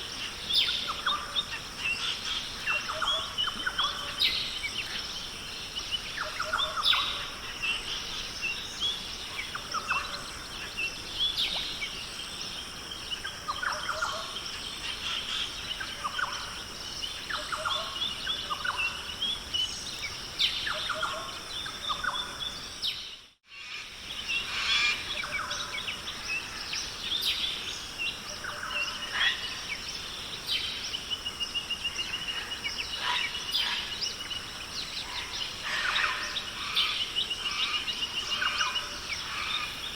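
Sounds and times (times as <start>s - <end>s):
high insect drone: 0.0s - 39.9s
birds calling: 28.2s - 39.9s.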